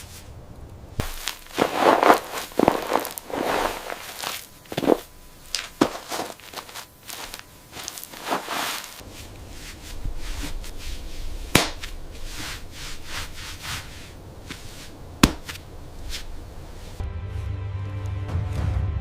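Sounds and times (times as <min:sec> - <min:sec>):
rustling: 0:00.0 - 0:17.0
sharp cracks or knocks: 0:11.5 - 0:12.0, 0:15.2 - 0:16.2
music: 0:17.0 - 0:19.0.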